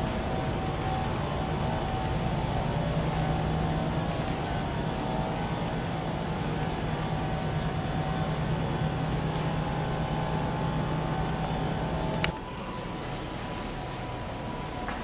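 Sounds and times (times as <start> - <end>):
low engine hum: 0.0 - 12.4
street traffic noise: 0.0 - 15.0.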